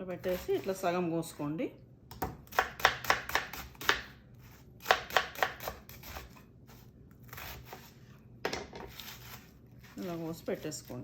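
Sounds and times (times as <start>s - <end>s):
knife slicing onion on cutting board: 0.1s - 0.9s, 2.1s - 11.0s
knife scraping board: 0.2s - 0.8s, 3.4s - 11.0s.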